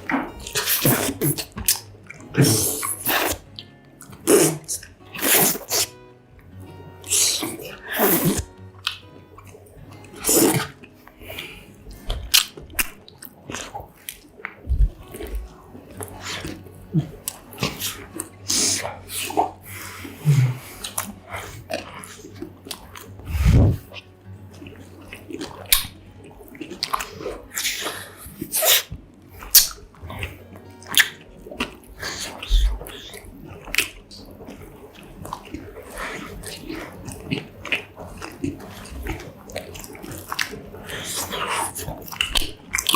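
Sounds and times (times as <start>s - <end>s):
chewing and crunching: 0.0s - 6.0s, 6.7s - 42.9s
sharp mouth bursts: 2.4s - 3.4s, 4.2s - 5.9s, 7.0s - 8.5s, 10.2s - 10.7s, 23.2s - 23.9s.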